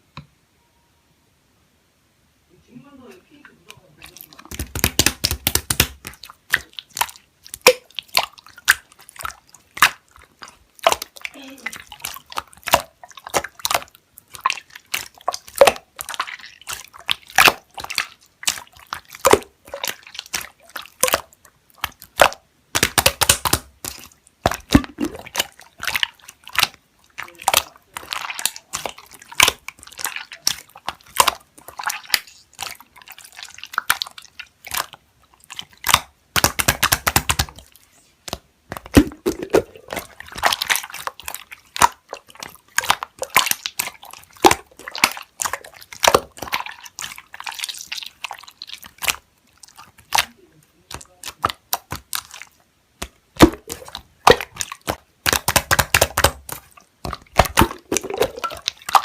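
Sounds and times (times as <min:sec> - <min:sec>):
slime squelching: 0:02.9 - 0:59.0.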